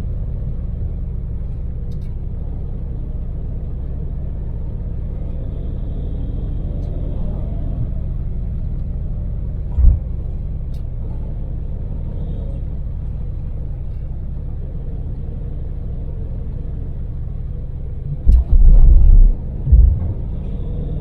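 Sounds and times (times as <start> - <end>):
van engine and road rumble: 0.0 - 21.0
loud low thump: 9.7 - 10.2, 18.2 - 20.4.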